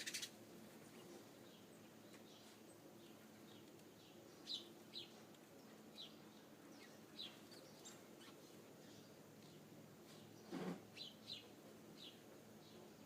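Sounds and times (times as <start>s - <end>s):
faint steady hum: 0.0s - 13.0s
small birds chirping: 0.0s - 13.0s.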